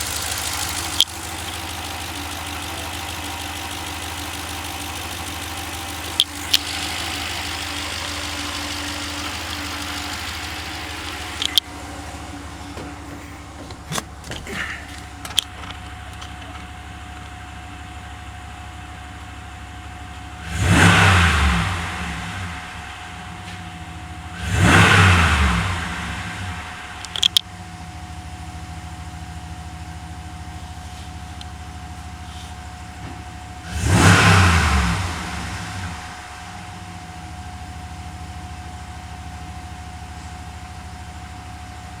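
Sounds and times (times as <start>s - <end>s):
car engine idling and revving: 0.0s - 42.0s.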